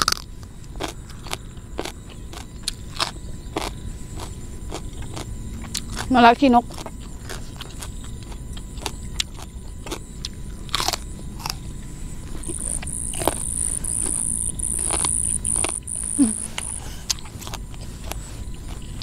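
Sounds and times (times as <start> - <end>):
crunchy chewing of raw vegetables: 0.0 - 19.0
high insect shrill: 12.4 - 17.3.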